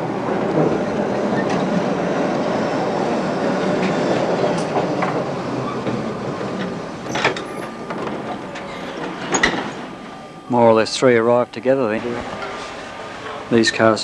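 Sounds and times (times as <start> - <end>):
sharp tram clatter: 0.0 - 14.0
tram rumbling on rails: 0.0 - 14.0.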